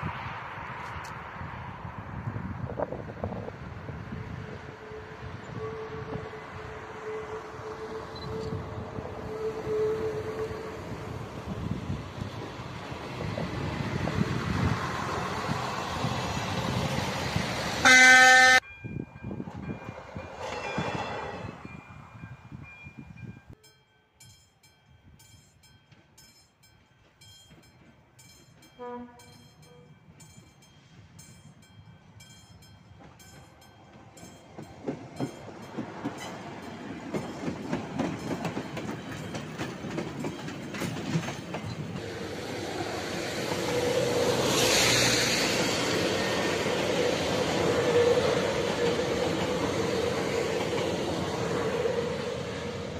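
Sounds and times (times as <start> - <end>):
approaching train rumble: 0.0 - 52.9
diesel railcar passing: 0.0 - 52.9
train horn blast: 4.1 - 11.2, 17.8 - 18.6, 28.8 - 29.9.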